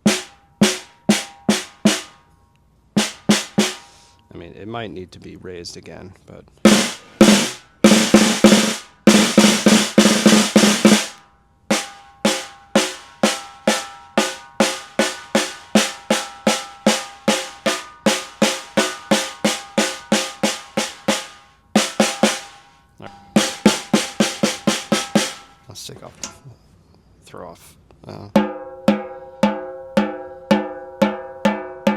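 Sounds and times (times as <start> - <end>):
snare drum hits: 0.0 - 2.1, 3.0 - 3.9, 6.7 - 22.7, 23.4 - 25.5.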